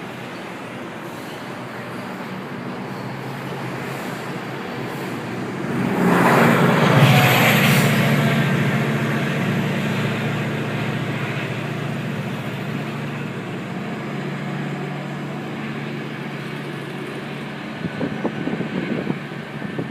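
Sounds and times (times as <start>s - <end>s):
diesel locomotive engine hum: 0.0s - 19.9s
rail noise: 0.0s - 19.9s
wind buffeting microphone: 17.5s - 19.9s.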